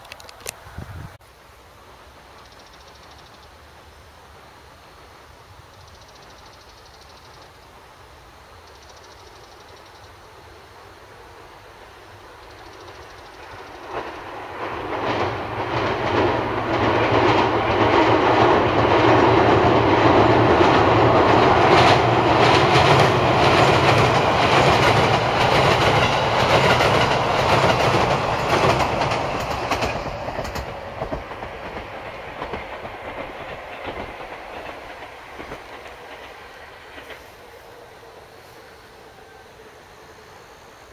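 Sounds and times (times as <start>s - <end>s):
train rumbling over bridge: 0.4s - 40.9s
wheels clicking over rail joints: 12.4s - 37.5s.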